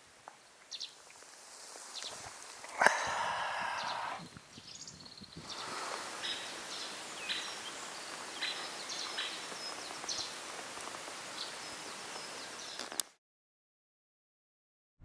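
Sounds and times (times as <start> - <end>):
rain hissing: 0.8 - 4.6, 5.4 - 13.0
bird chirps: 3.7 - 10.4.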